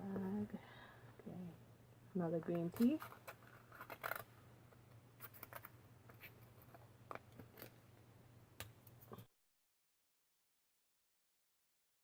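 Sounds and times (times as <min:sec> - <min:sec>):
low steady hum: 0:00.0 - 0:09.3.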